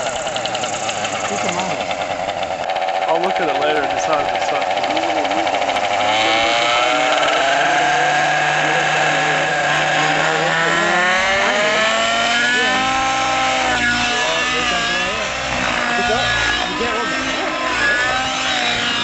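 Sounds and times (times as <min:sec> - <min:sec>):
model helicopter engine and rotor: 0:00.0 - 0:19.0.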